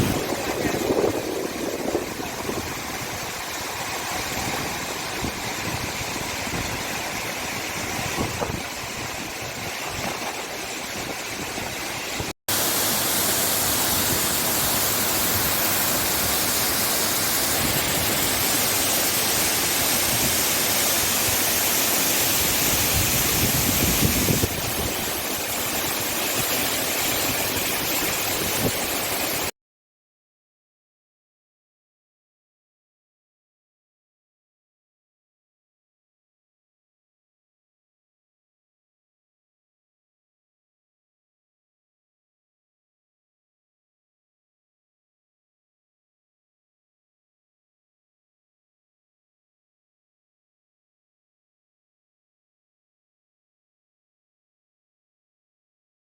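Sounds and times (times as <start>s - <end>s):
rushing flowing water: 0.0s - 29.5s.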